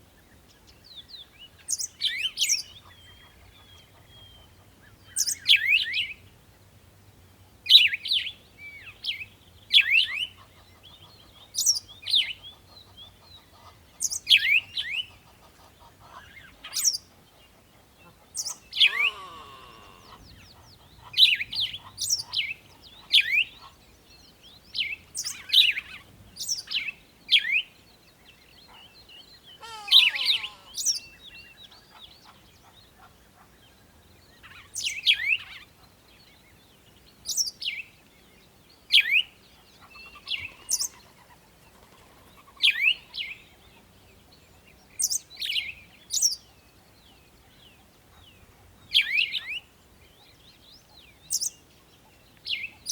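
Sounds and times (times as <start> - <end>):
birds chirping: 8.8 - 35.3.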